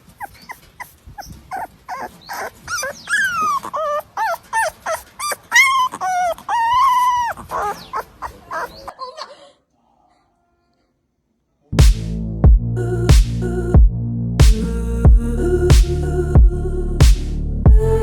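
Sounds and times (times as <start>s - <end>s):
dog whimpering and crying: 0.0s - 9.5s.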